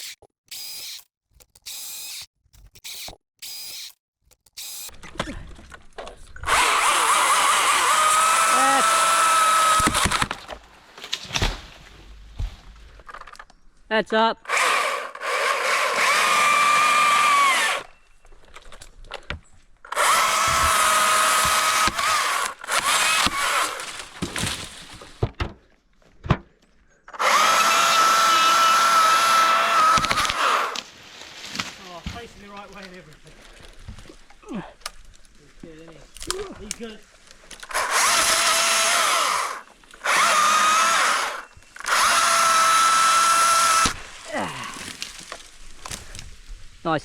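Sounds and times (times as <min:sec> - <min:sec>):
electric chainsaw whining: 0:01.6 - 0:05.0, 0:06.4 - 0:10.5, 0:14.4 - 0:18.0, 0:19.9 - 0:24.4, 0:27.2 - 0:30.9, 0:37.6 - 0:44.2.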